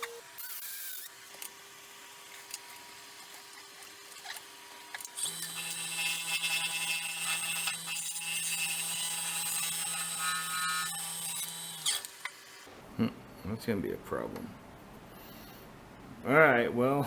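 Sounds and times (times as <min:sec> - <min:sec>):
electric power tool running: 0:00.0 - 0:12.7.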